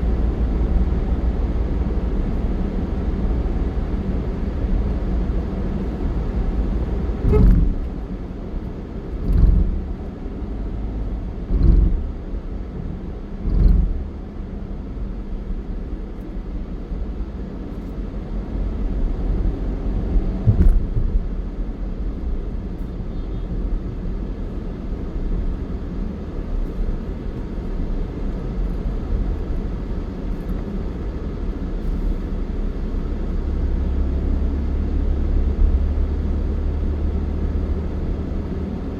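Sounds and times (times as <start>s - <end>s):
vehicle rumble: 0.0s - 38.9s
heavy low thumps: 6.9s - 8.3s, 9.1s - 10.1s, 11.4s - 12.3s, 13.4s - 14.1s, 20.3s - 21.3s
sharp knock: 7.3s - 7.9s.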